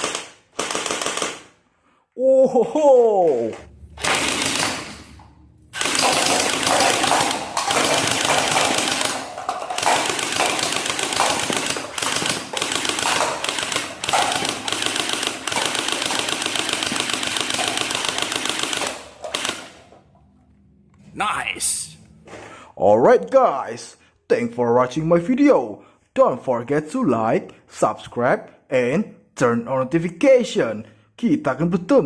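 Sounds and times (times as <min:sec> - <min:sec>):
toy machine gun clicking: 0:00.0 - 0:01.5, 0:05.8 - 0:19.9.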